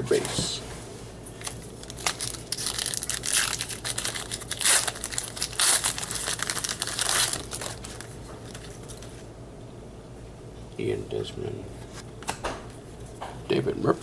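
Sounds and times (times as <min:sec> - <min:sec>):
foil wrapper crinkling and tearing: 0:01.4 - 0:09.2.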